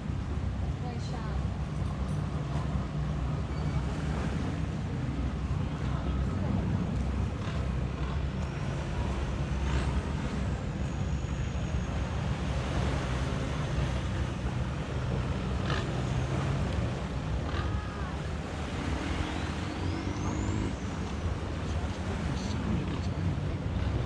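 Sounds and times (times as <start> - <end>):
low beach rumble: 0.0 - 24.0
faint high whistling glides: 9.7 - 14.8, 18.6 - 22.5.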